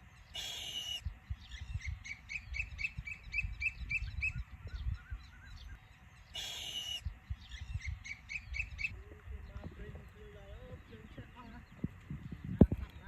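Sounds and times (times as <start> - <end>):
birds calling: 0.0 - 13.0
bird screech: 0.4 - 1.0, 6.4 - 7.0.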